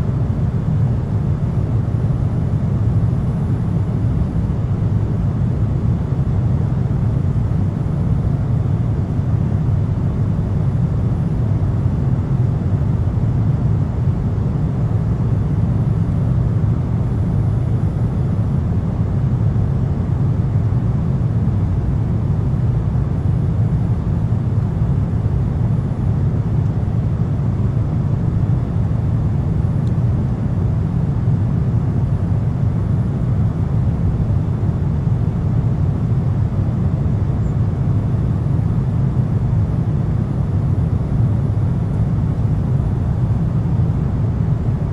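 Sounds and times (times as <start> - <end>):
airliner cabin engine rumble: 0.0 - 44.9.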